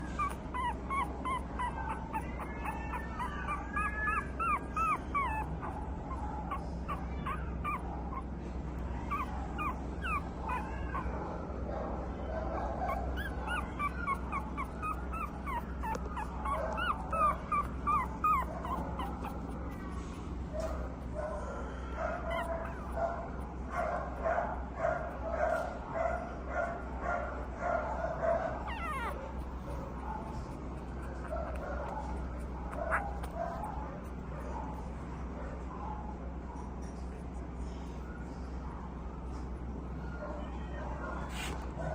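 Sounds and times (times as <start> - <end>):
puppy whimpering and yipping: 0.0 - 11.3, 12.4 - 24.2, 28.3 - 34.9.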